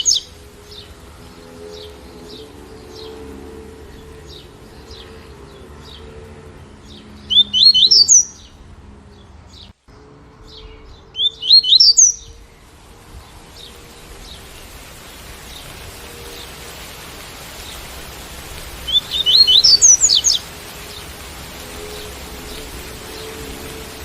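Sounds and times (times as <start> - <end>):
bird singing rising notes: 0.0 - 24.0
soft steady hiss: 11.4 - 24.0.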